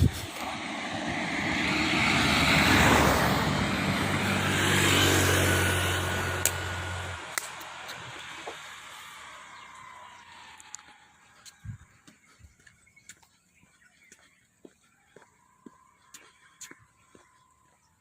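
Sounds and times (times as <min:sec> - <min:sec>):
vehicle passing by: 0:00.0 - 0:13.4.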